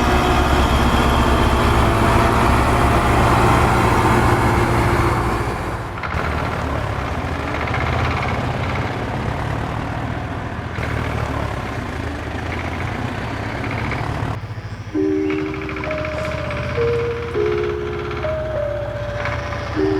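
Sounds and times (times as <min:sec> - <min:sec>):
tractor engine running: 0:00.0 - 0:19.9
electronic tune of held notes: 0:15.0 - 0:19.9.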